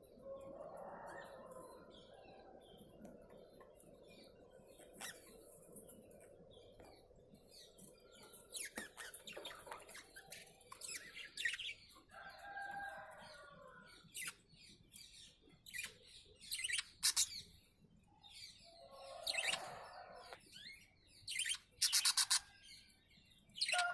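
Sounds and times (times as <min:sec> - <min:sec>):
cockatiels chirping: 0:20.6 - 0:22.5.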